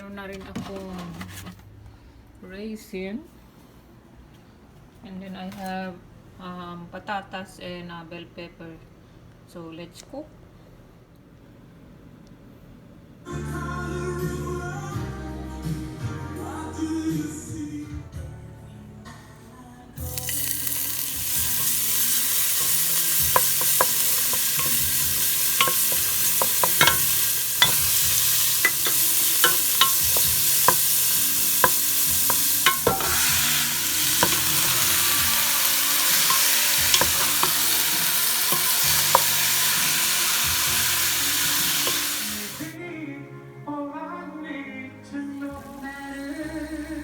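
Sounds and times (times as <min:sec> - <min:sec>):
food sizzling in frying pan: 0:20.1 - 0:42.8
utensil clicking against pan: 0:20.2 - 0:39.6.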